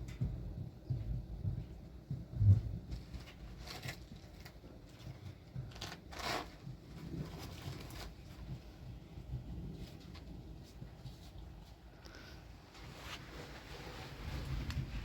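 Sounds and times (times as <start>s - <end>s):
rustling handling noises: 2.8s - 9.1s, 9.7s - 15.0s.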